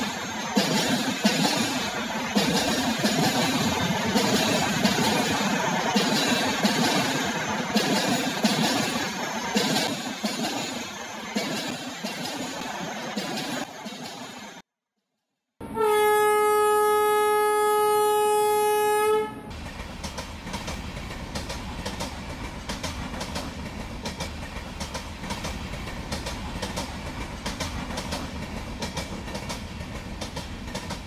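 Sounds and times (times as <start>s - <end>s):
train wheels clickety-clack: 0.0s - 14.6s, 19.5s - 31.0s
train horn blast: 15.6s - 19.5s.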